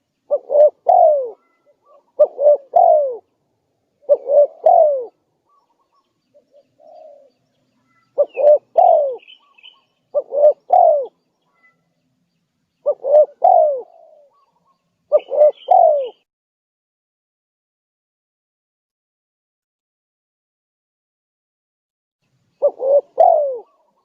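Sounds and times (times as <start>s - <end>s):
dove cooing: 0.0s - 3.3s, 4.0s - 11.8s, 12.8s - 16.3s, 22.6s - 24.0s
faint high bird chirps: 0.0s - 16.3s, 22.2s - 24.0s.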